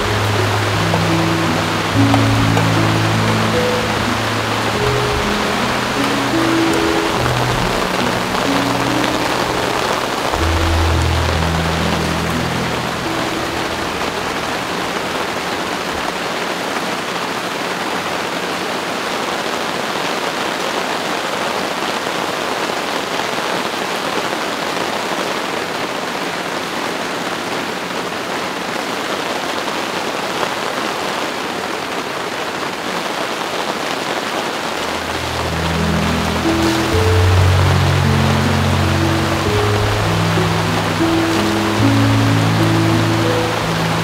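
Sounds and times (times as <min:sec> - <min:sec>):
low background music: 0:00.0 - 0:16.0, 0:34.8 - 0:44.0
steady rain falling: 0:00.0 - 0:44.0.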